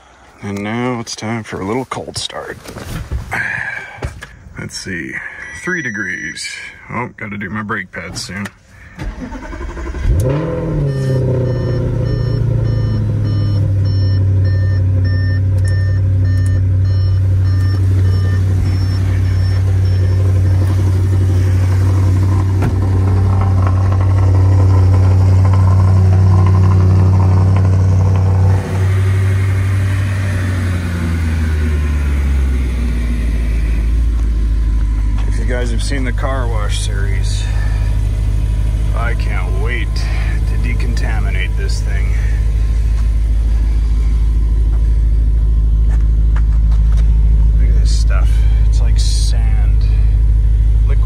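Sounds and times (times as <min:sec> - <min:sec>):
car engine starting and idling: 0:00.0 - 0:51.0
electronic chime beeping: 0:10.9 - 0:20.6.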